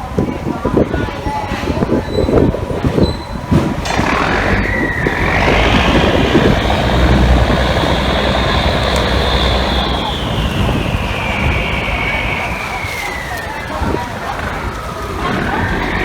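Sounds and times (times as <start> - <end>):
boat machinery humming: 1.7 - 16.0
high machine whine: 3.6 - 16.0.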